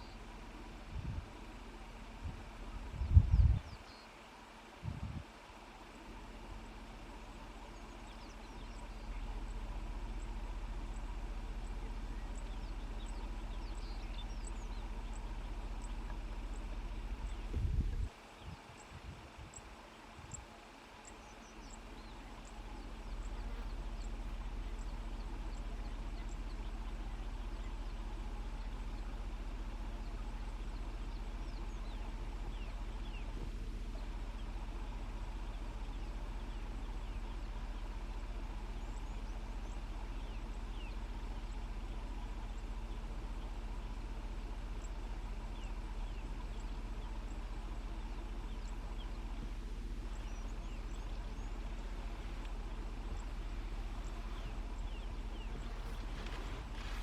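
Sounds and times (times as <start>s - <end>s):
small birds chirping: 0.0s - 57.0s
vehicle engine idling: 0.0s - 57.0s.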